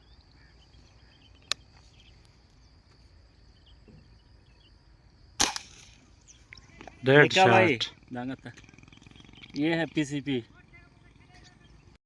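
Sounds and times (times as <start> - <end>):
insects chirring: 0.0 - 12.0
airgun shot: 5.4 - 6.1.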